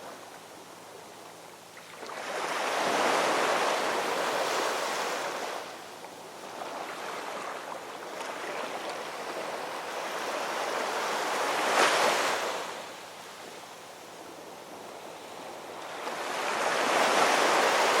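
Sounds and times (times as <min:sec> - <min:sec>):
ocean waves breaking: 0:15.0 - 0:18.0.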